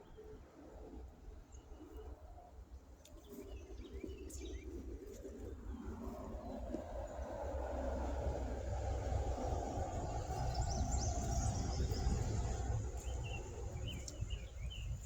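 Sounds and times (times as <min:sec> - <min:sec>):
low rumble: 0:07.2 - 0:15.0
birds chirping: 0:09.9 - 0:15.0.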